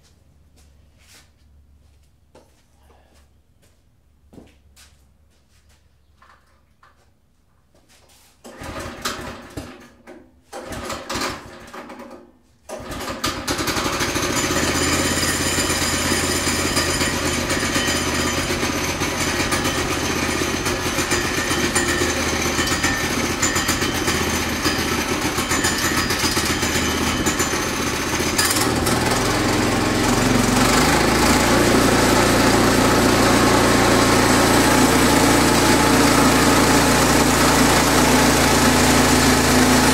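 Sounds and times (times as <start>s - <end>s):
sawmill engine starting and running: 8.4s - 39.9s.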